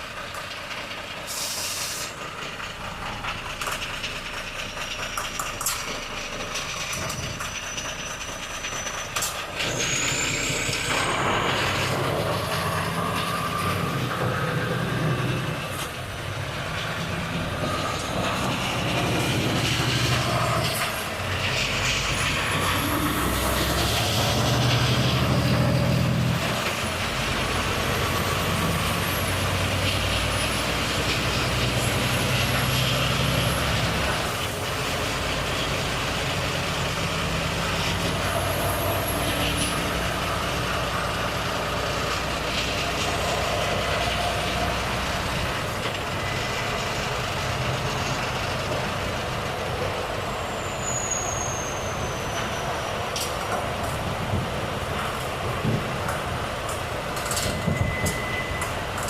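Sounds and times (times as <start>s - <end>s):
truck engine running: 0.0s - 51.3s
faint high whistle: 50.5s - 52.7s, 57.5s - 58.7s.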